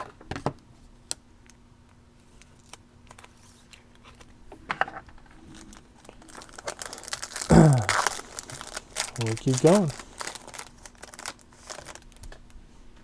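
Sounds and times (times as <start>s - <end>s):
foil wrapper tearing and crinkling: 5.5s - 12.3s
short voice sound: 7.5s - 8.0s.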